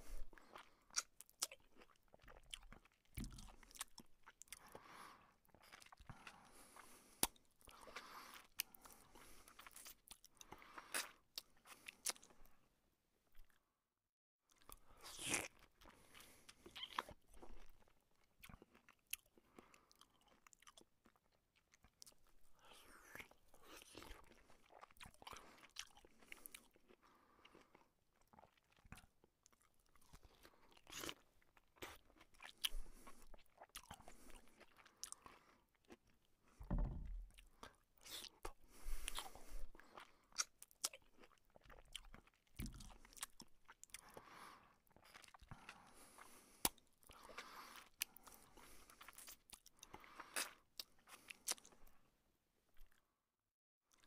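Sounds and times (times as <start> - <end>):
wet chewing mouth sounds: 0.1 - 12.4, 14.5 - 36.3, 36.9 - 52.0
low thumps: 36.6 - 37.4.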